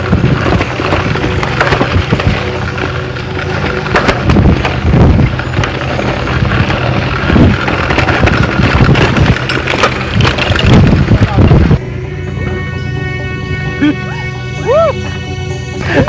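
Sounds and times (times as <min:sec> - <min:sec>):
bicycle knocks and rattles: 0:00.0 - 0:11.8
bicycle tyres rumbling: 0:00.0 - 0:16.0.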